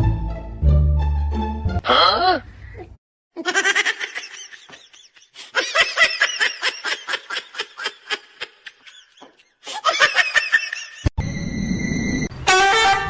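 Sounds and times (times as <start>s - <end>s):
person laughing hard: 3.4s - 11.1s.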